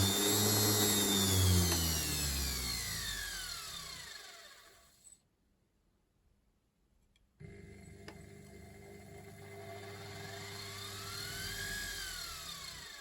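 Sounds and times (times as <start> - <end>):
washing machine motor whining: 0.0 - 4.6, 7.4 - 13.0.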